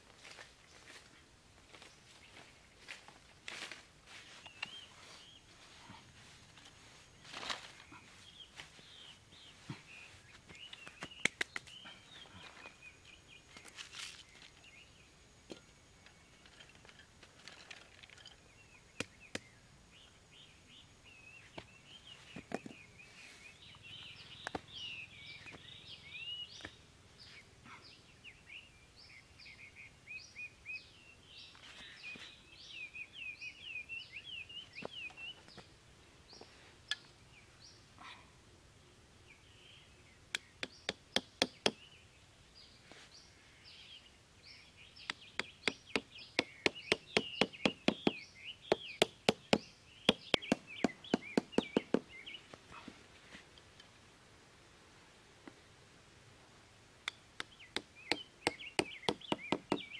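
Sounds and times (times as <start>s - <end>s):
small birds chirping: 0.2s - 54.2s, 56.4s - 59.9s
taps of bamboo sticks and basket: 10.5s - 11.7s, 40.3s - 41.8s, 45.0s - 52.1s, 57.0s - 59.9s.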